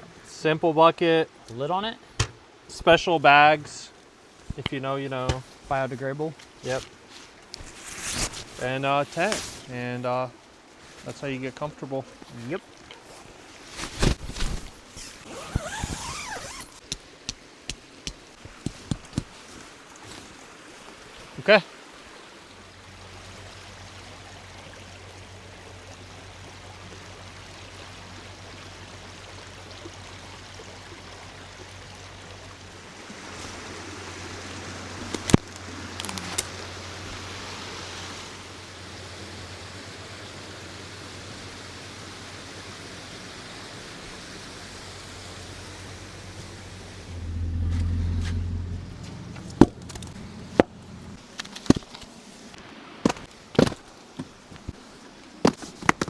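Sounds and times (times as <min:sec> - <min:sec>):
creek water flowing: 0:00.0 - 0:56.0
sharp clicks or knocks: 0:02.2 - 0:02.4
low steady hum: 0:45.0 - 0:52.1
low rumble: 0:46.4 - 0:51.2.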